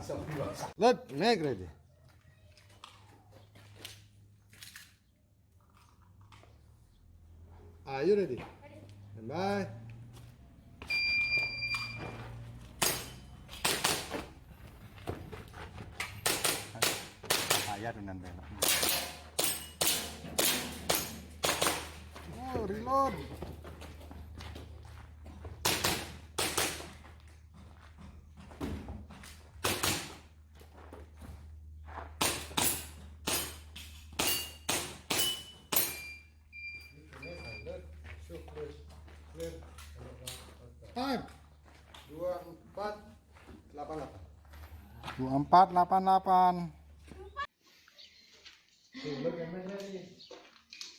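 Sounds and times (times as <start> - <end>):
shot timer beep: 10.9 - 12.1
airsoft pistol shots: 12.8 - 14.2, 16.2 - 17.8, 18.6 - 22.0, 25.6 - 26.9, 29.6 - 30.2.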